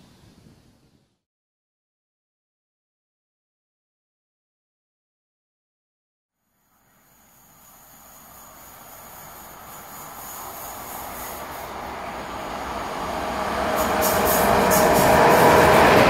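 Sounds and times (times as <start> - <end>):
train rumble and rail noise: 6.5 - 16.0.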